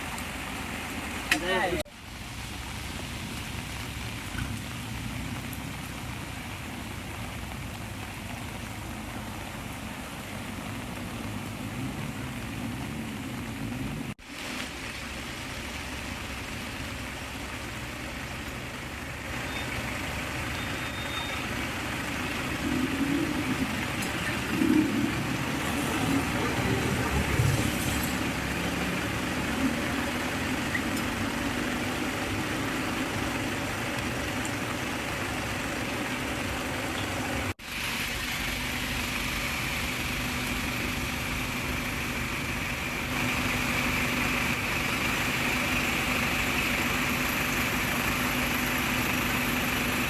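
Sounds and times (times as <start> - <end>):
vehicle engines running: 0.0 - 50.0.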